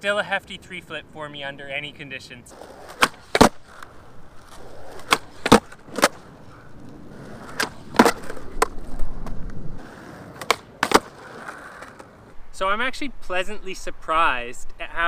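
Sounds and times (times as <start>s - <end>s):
skateboard rolling on concrete: 1.4s - 12.4s
skateboard tail cracks and landings: 2.6s - 12.3s.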